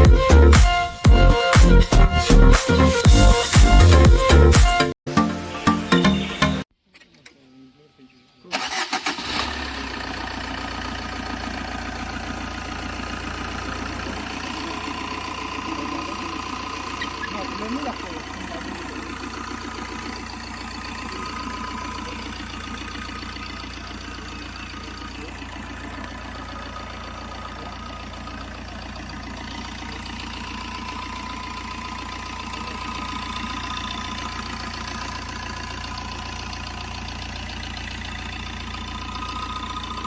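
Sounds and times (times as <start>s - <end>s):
diesel engine idling: 8.5s - 40.0s.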